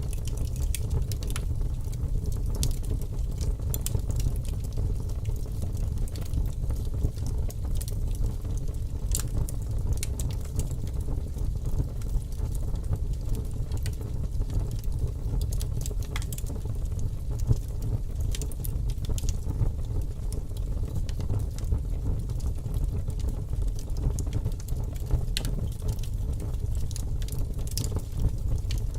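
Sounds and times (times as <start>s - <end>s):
fire crackling and popping: 0.0s - 28.9s.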